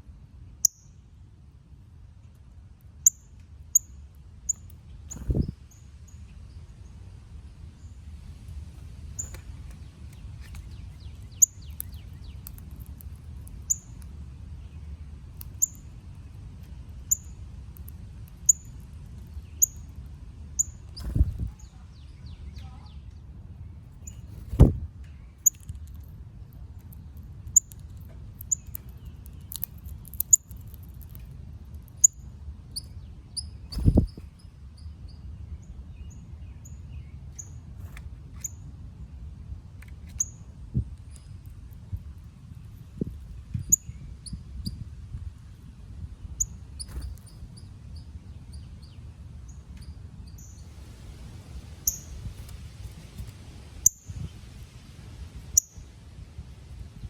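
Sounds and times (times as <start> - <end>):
steady low rumble: 4.4 - 34.4.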